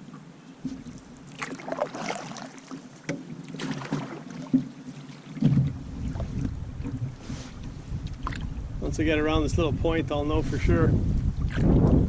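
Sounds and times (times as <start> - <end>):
paddle strokes: 0.0 - 8.6
water slapping against hull: 0.0 - 8.6, 11.0 - 12.0
wind buffeting microphone: 5.4 - 12.0.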